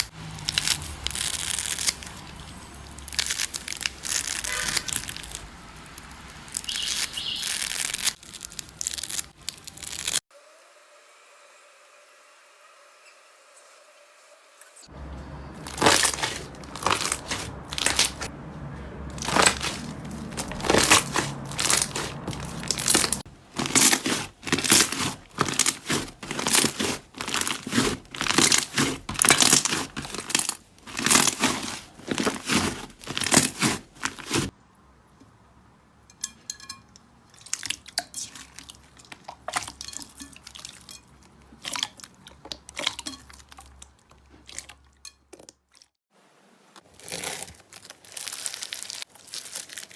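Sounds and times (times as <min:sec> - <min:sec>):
slime squishing by hand: 0:00.0 - 0:10.2, 0:15.6 - 0:18.3, 0:19.1 - 0:34.5, 0:46.8 - 0:49.9.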